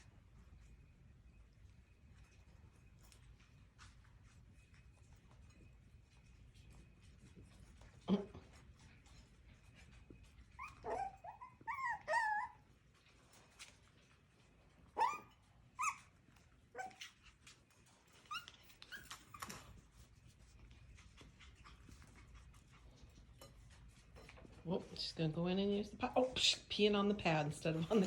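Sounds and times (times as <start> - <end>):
puppies yipping and whining: 9.8 - 12.8, 14.9 - 19.9.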